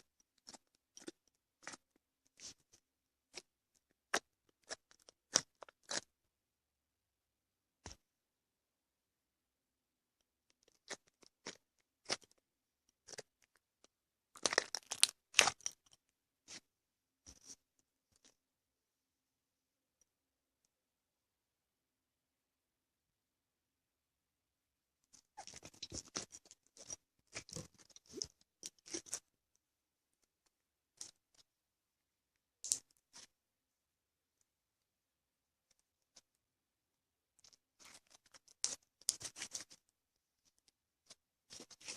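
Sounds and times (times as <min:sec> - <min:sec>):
slime crackling and popping: 0:14.4 - 0:15.9.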